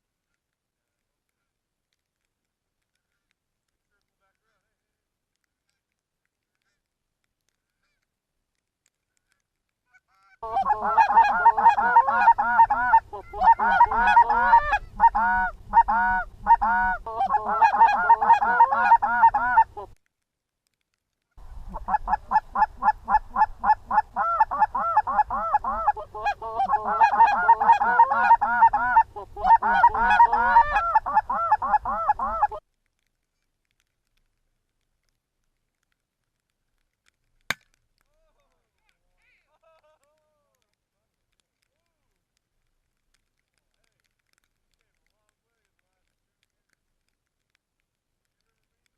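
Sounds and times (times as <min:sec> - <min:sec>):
goose honking and clucking: 0:09.9 - 0:20.0, 0:21.7 - 0:32.6.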